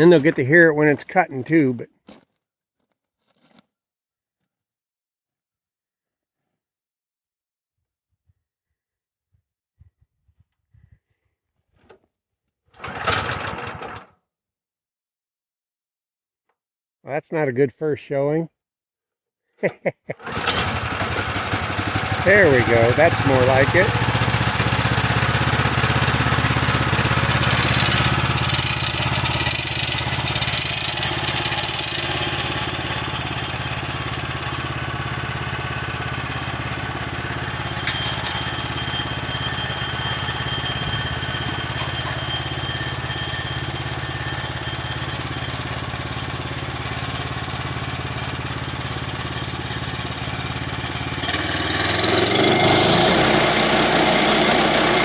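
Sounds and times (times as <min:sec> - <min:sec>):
small gas engine running: 0:12.8 - 0:14.1, 0:20.2 - 0:55.0.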